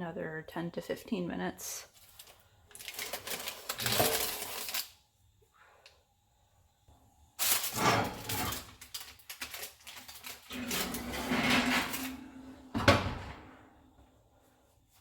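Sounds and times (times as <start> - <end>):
rushing scrape: 10.5 - 12.6.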